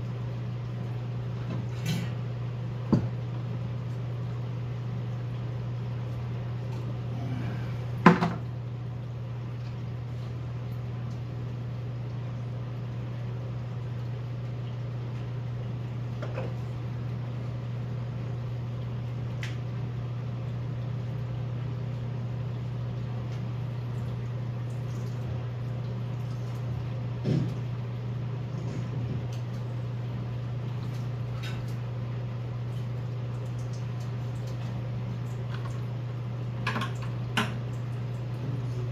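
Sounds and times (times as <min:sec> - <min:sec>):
low mechanical hum: 0:00.0 - 0:38.9.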